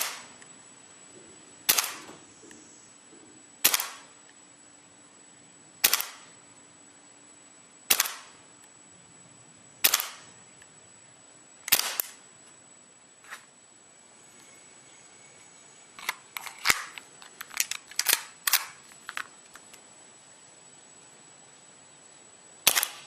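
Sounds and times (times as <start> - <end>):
airsoft pistol shots: 0.0 - 0.4, 1.7 - 2.2, 3.6 - 4.2, 5.8 - 6.4, 7.9 - 8.4, 9.8 - 10.3, 11.7 - 12.2, 22.6 - 23.0.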